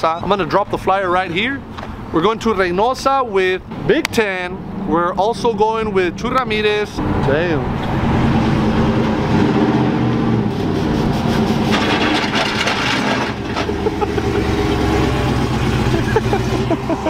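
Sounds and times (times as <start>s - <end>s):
vehicle engine idling: 10.4s - 17.0s.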